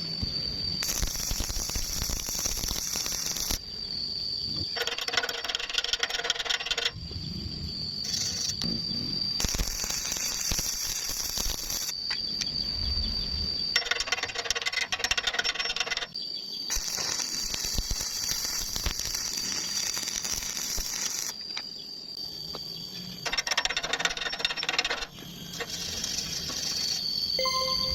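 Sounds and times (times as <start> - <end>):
arc welding crackling: 0.8 - 3.6, 8.0 - 8.7, 9.4 - 12.0, 16.7 - 21.5, 25.6 - 27.0
steady high whine: 26.6 - 27.9.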